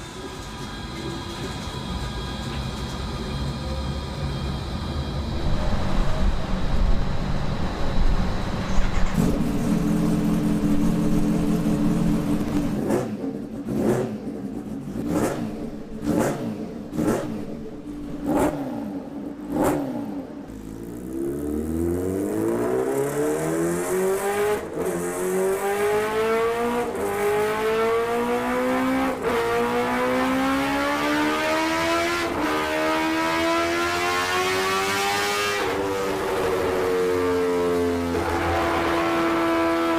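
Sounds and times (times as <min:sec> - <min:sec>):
sport bike engine revving: 0:09.1 - 0:39.9.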